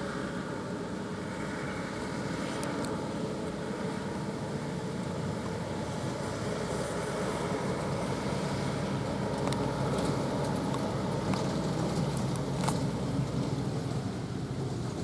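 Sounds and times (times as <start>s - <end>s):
truck engine running: 2.9s - 15.0s.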